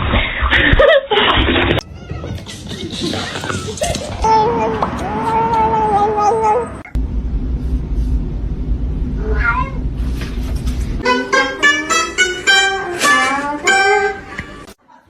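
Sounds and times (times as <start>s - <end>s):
steady low rumble: 1.8s - 11.0s
cat meowing: 9.2s - 9.8s
plucked-string music: 11.0s - 14.7s.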